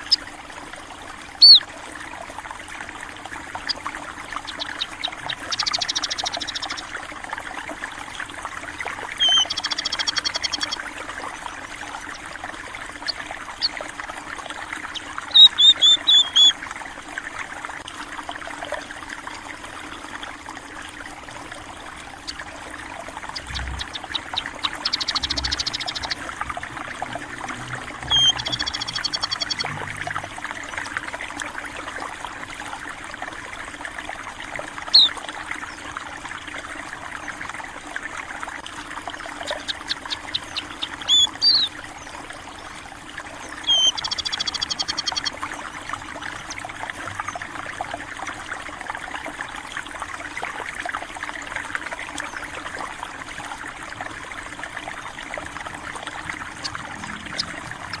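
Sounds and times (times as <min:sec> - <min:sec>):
water trickling in a stream: 0:00.0 - 0:58.0
small birds chirping: 0:01.4 - 0:01.6, 0:03.6 - 0:06.9, 0:09.0 - 0:10.8, 0:14.8 - 0:16.5, 0:23.1 - 0:30.3, 0:34.8 - 0:35.2, 0:39.2 - 0:42.1, 0:43.5 - 0:45.4, 0:56.1 - 0:58.0.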